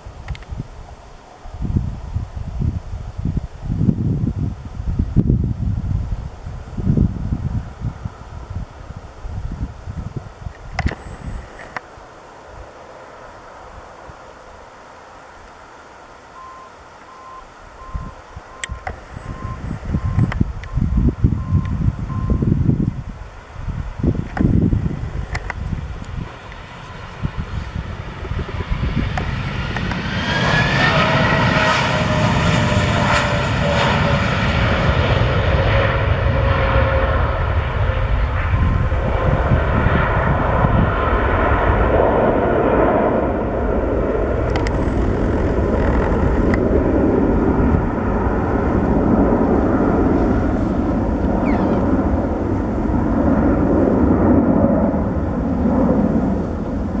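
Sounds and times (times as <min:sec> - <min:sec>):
jet engines roaring: 0:06.0 - 0:57.0
falling engine whine: 0:15.2 - 0:57.0.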